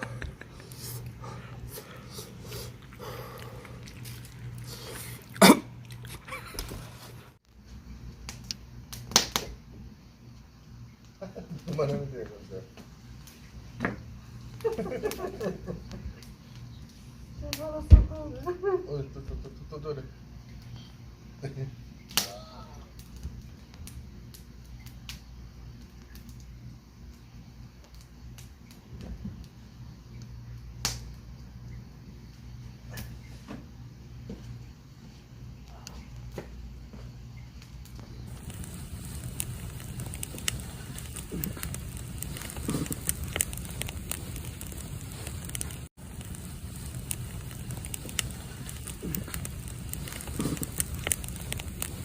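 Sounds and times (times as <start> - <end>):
campfire crackling: 0.0 - 18.9, 21.7 - 52.0
person coughing: 5.3 - 6.6.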